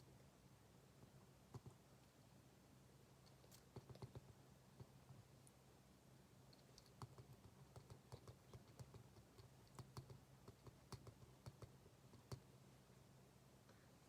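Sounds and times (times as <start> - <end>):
low steady hum: 0.0 - 14.0
desk work clicks and taps: 1.5 - 1.8, 3.3 - 5.2, 6.6 - 12.5.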